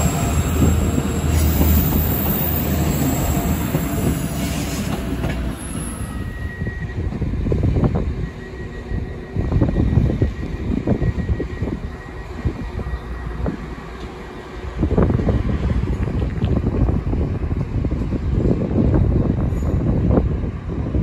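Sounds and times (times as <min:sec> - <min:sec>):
diesel train rumbling: 0:00.0 - 0:21.0
wind buffeting microphone: 0:00.0 - 0:21.0.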